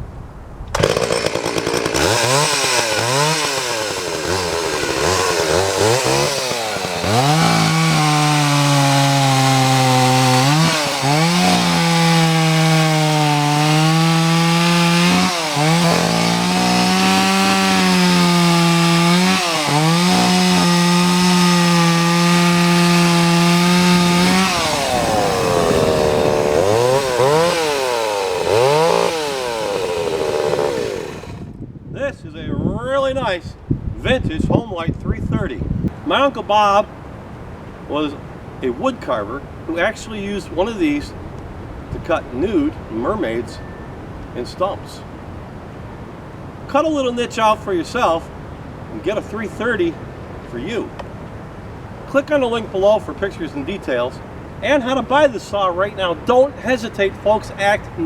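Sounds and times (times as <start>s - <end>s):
chainsaw revving: 0.7s - 31.5s.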